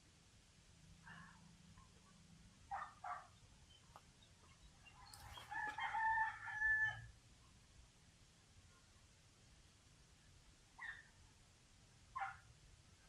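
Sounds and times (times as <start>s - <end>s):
rooster crowing: 5.2s - 7.1s.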